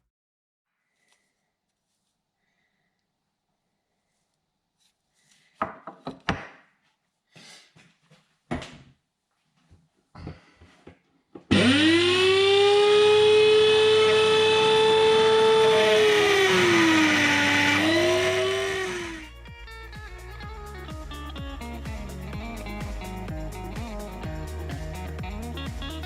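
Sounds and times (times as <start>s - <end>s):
angle grinder whining: 11.5s - 19.3s.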